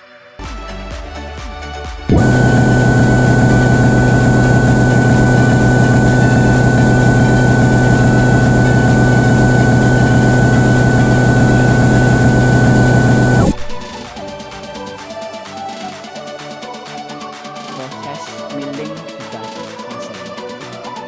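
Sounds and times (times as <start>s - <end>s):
milling machine hum: 2.1s - 14.0s
thin high whine: 2.1s - 14.0s.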